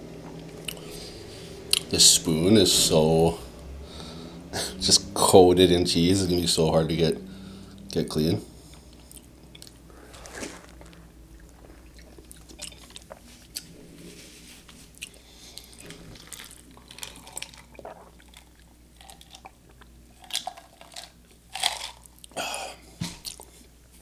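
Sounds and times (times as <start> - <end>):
person chewing: 0.3 - 1.1, 1.7 - 1.9, 8.7 - 13.8, 14.7 - 23.7
drinking from a cup: 8.7 - 13.7, 15.0 - 19.8.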